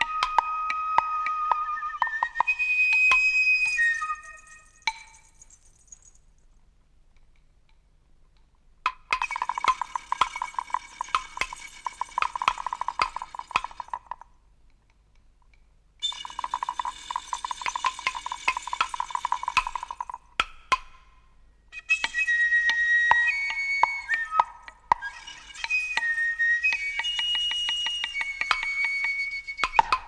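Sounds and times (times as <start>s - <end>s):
whistle-like flute tones: 0.0s - 5.6s, 9.2s - 14.0s, 16.0s - 20.2s, 21.7s - 30.0s
percussion rattle shaken: 1.6s - 6.6s, 8.9s - 14.3s, 16.0s - 21.1s, 21.8s - 30.0s.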